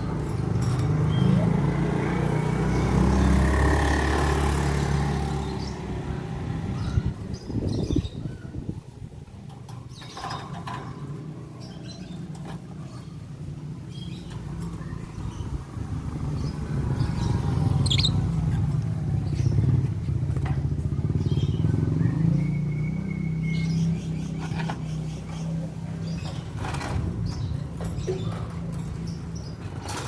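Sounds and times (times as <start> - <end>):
lovebirds chirping: 5.2 - 19.9.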